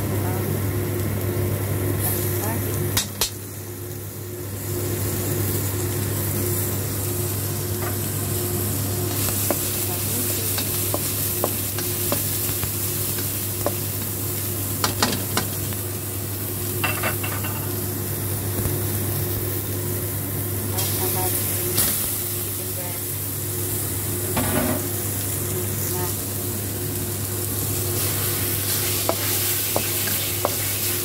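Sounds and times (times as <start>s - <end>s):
onion sizzling in hot oil: 0.0s - 31.0s
steady low hum: 0.0s - 31.0s
spatula tapping and scraping pan: 10.5s - 12.3s.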